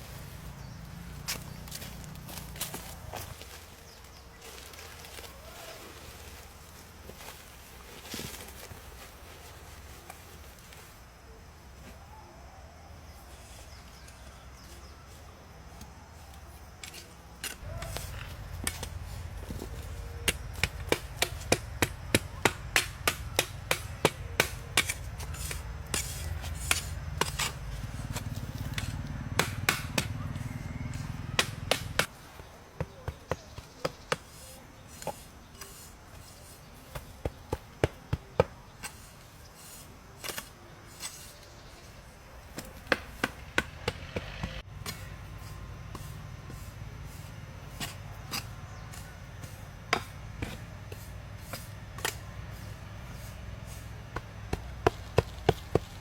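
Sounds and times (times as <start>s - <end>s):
steady low rumble: 17.6s - 32.0s.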